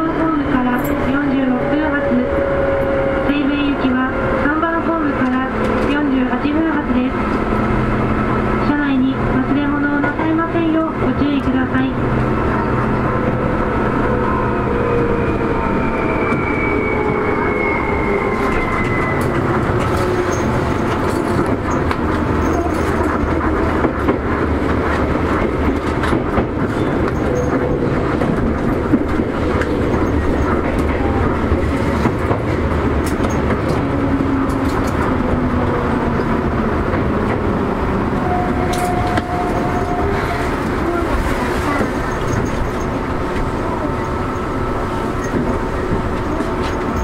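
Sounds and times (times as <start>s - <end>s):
train rumbling: 0.0s - 47.0s
wheels clicking over rail joints: 18.4s - 35.4s, 45.2s - 47.0s.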